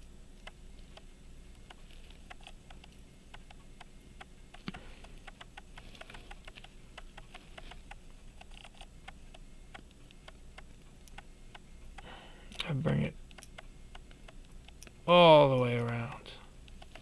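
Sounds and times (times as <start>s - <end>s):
metal tools clicking on watch: 13.3s - 15.0s.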